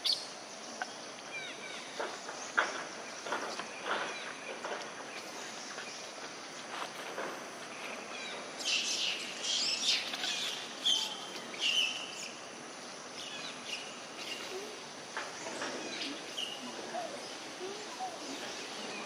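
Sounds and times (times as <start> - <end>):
steady outdoor hiss: 0.0 - 19.0
birds chirping: 13.1 - 19.0.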